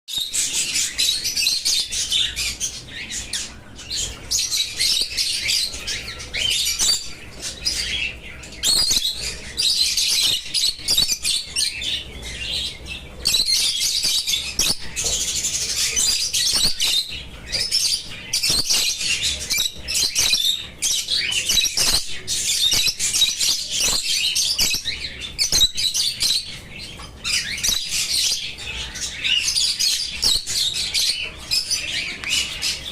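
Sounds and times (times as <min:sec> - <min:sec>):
small birds chirping: 0:00.1 - 0:32.9.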